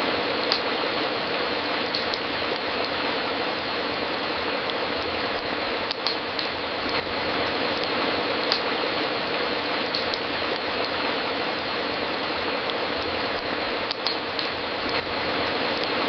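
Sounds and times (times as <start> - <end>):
fireplace crackling: 0.0 - 16.0
sharp pops of fire: 0.4 - 0.8, 1.8 - 3.2, 4.6 - 9.0, 9.8 - 11.2, 12.0 - 16.0.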